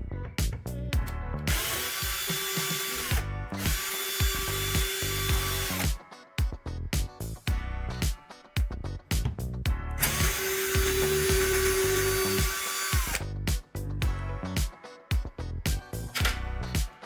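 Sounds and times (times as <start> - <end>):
background music with beat: 0.0 - 17.0
power drill whining: 1.5 - 5.9, 10.0 - 13.3.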